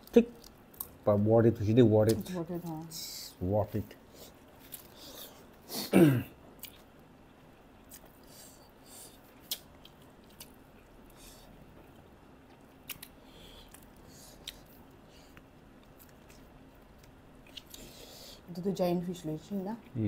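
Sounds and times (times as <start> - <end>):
people chewing: 6.6 - 6.9, 7.8 - 18.4.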